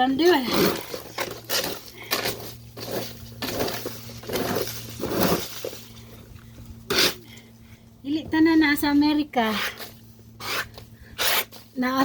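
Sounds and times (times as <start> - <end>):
crunching and rustling handling: 0.0 - 7.6
steady low hum: 0.0 - 12.0.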